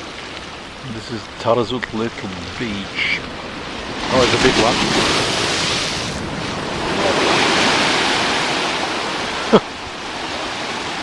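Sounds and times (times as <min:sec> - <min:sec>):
ocean wave breaking: 0:00.0 - 0:11.0.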